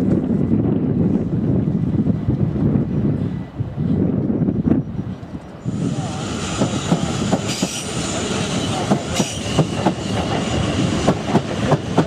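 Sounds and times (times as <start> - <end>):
train wheels clattering: 6.1 - 12.0.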